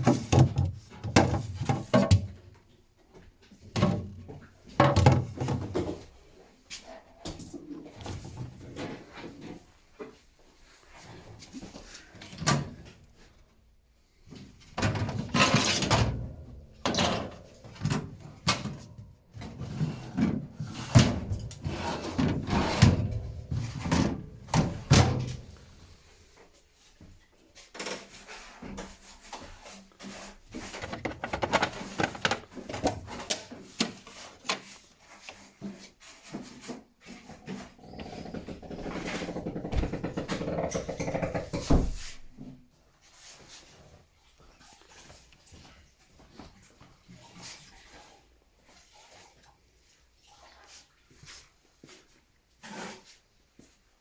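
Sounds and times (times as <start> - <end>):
plastic drawers knocking and clicking: 0.0 - 2.5, 3.7 - 6.1, 30.6 - 34.0, 38.0 - 42.1
drawers sliding and scraping: 14.8 - 16.2, 19.4 - 25.5, 30.0 - 34.7.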